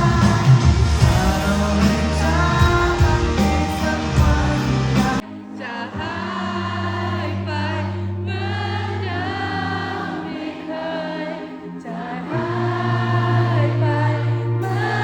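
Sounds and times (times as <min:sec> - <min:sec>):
live band playing: 0:00.0 - 0:05.3.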